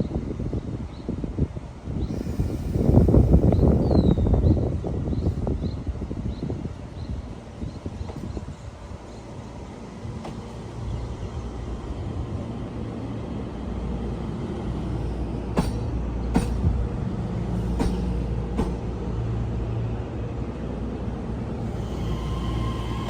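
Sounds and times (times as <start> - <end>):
train passing rumble: 0.0 - 23.0
wheels clacking over rail joints: 15.4 - 19.1.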